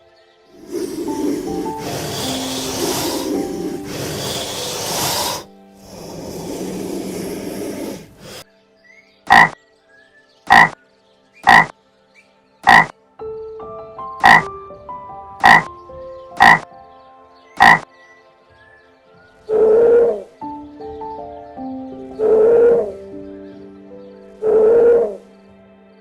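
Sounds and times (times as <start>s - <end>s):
soft background music: 0.0s - 26.0s
animal croaking calls: 0.6s - 8.4s, 9.3s - 9.6s, 10.5s - 10.8s, 11.4s - 11.7s, 12.6s - 12.9s, 14.2s - 14.5s, 15.4s - 15.7s, 16.4s - 16.7s, 17.6s - 17.9s, 19.5s - 20.4s, 22.2s - 23.0s, 24.4s - 25.2s.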